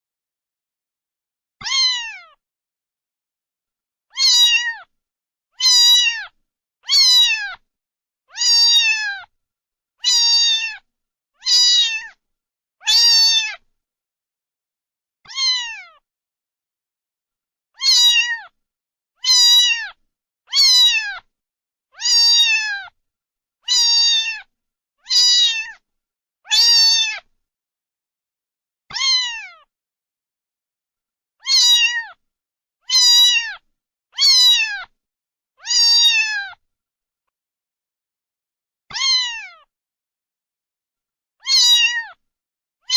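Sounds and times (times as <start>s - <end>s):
cat meowing: 1.6s - 2.4s, 4.1s - 4.9s, 5.6s - 7.6s, 8.3s - 9.3s, 10.0s - 12.2s, 12.8s - 13.6s, 15.3s - 16.0s, 17.8s - 18.6s, 19.2s - 21.3s, 22.0s - 23.0s, 23.6s - 25.8s, 26.5s - 27.3s, 28.9s - 29.7s, 31.4s - 32.2s, 32.8s - 35.0s, 35.6s - 36.6s, 38.9s - 39.7s, 41.4s - 42.2s.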